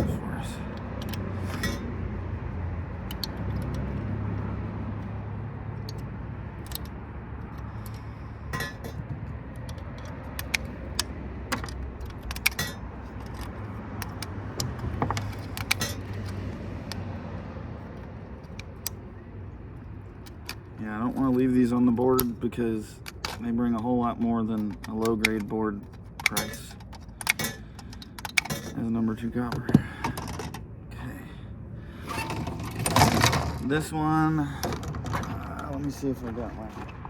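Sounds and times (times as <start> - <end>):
metallic clicks of hand tools: 0.7 - 2.3, 2.9 - 5.2, 5.8 - 17.2, 20.1 - 28.9.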